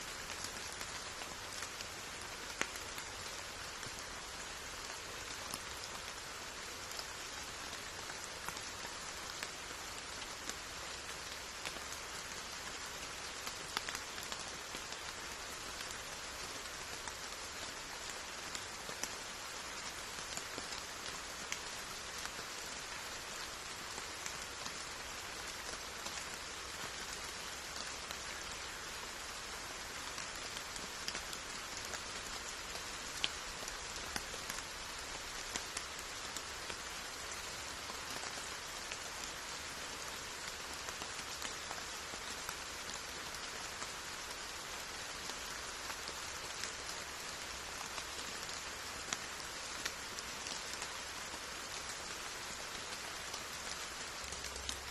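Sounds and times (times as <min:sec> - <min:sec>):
steady rain hiss: 0:00.0 - 0:54.9
raindrops ticking: 0:53.6 - 0:54.9.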